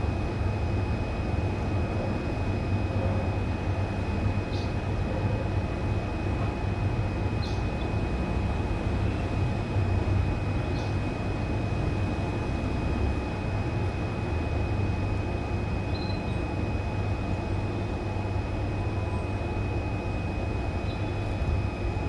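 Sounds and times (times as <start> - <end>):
faint bird chirp: 15.9 - 16.4, 20.8 - 21.2.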